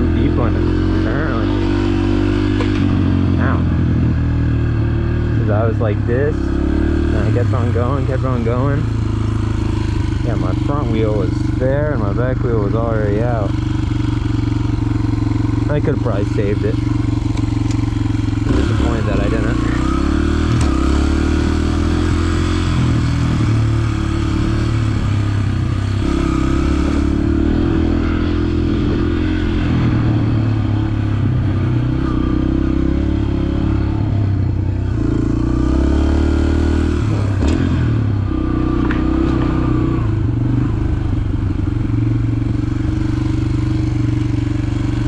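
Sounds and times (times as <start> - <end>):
dirt bike engine revving: 0.0 - 45.0.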